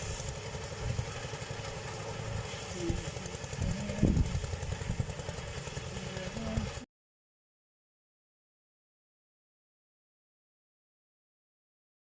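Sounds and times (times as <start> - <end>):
small engine running: 0.0 - 6.9.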